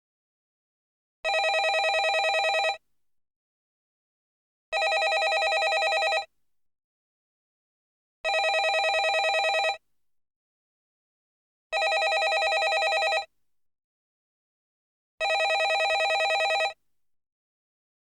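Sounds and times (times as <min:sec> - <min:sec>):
landline telephone ringing: 0:01.3 - 0:02.8, 0:04.8 - 0:06.3, 0:08.3 - 0:09.8, 0:11.8 - 0:13.3, 0:15.2 - 0:16.8.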